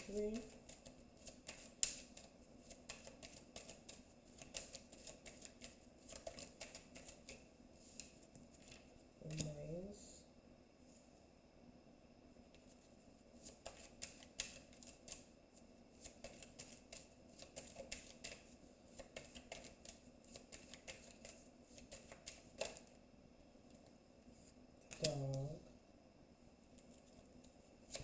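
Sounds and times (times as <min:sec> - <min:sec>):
cards being shuffled by hand: 0:00.0 - 0:09.6, 0:12.5 - 0:23.0, 0:23.7 - 0:25.6, 0:26.7 - 0:28.0.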